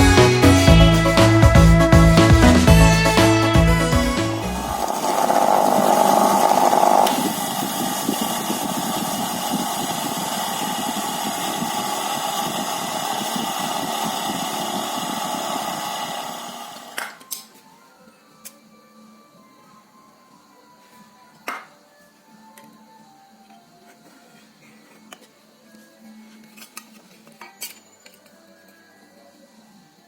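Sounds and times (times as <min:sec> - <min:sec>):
electric power tool running: 0:00.0 - 0:17.0.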